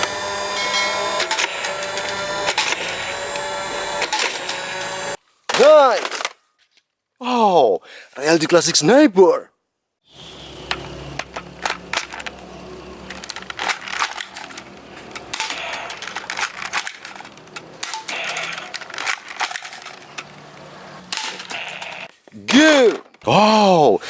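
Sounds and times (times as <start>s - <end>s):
plastic toy clicks and rattles: 0.0s - 6.8s, 10.7s - 23.3s
rustling: 11.2s - 23.3s.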